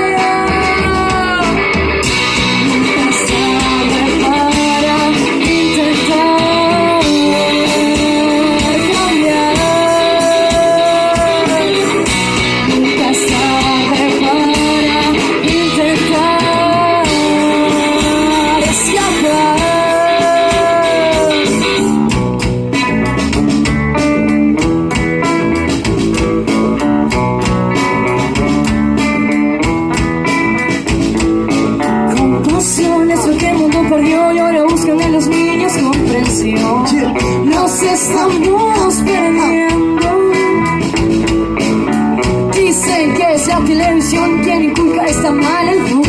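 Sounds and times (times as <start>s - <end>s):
live rock band with guitar: 0.0s - 46.0s.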